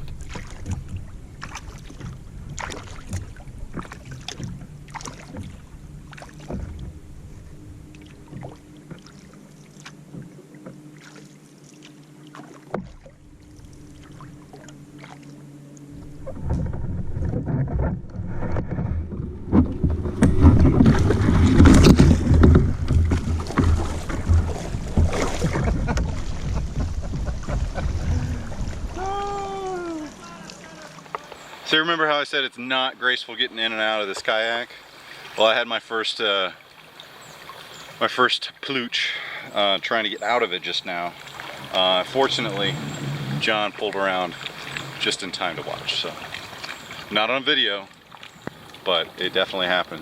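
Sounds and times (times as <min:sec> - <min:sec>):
steady low hum: 0:00.0 - 0:31.8
kayak paddle splashes: 0:00.0 - 0:50.0
water against hull: 0:00.0 - 0:50.0.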